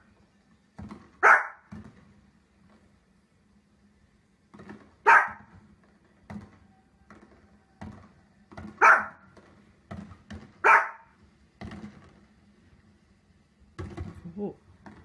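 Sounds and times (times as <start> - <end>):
fireworks thumps on television: 0.7 - 2.9, 4.4 - 10.7, 11.5 - 12.5, 13.7 - 15.0
small dog barking: 1.2 - 1.7, 5.0 - 5.5, 8.8 - 9.2, 10.6 - 11.2.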